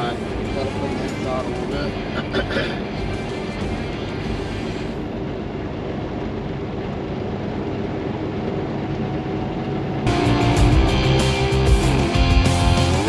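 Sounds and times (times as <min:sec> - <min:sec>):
truck engine and road noise: 0:00.0 - 0:13.0.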